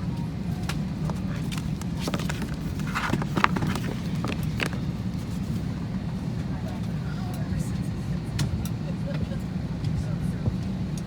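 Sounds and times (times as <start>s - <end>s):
airliner cabin hum: 0.0s - 8.4s
clicks and knocks from people moving: 1.0s - 4.9s.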